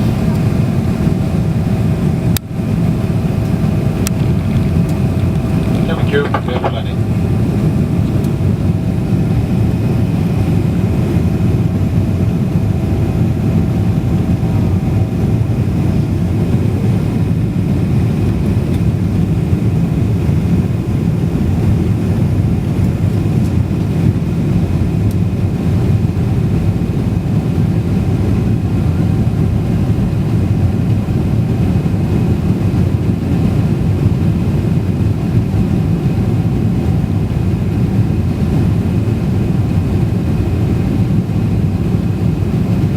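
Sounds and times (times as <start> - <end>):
faint whine: 0.0 - 16.7
airliner engine rumble: 0.0 - 42.9.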